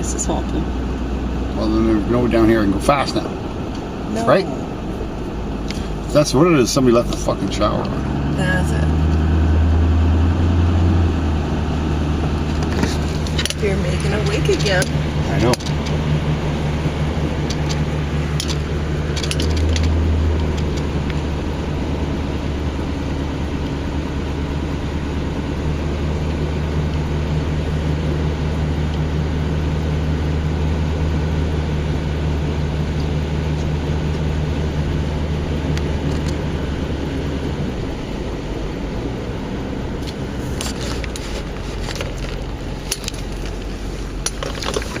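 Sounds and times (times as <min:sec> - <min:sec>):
vehicle engine hum: 0:00.0 - 0:45.0.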